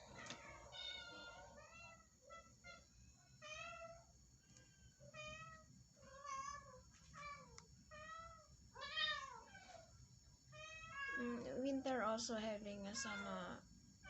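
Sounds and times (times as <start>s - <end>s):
cat meowing: 5.1s - 9.8s, 10.6s - 11.4s.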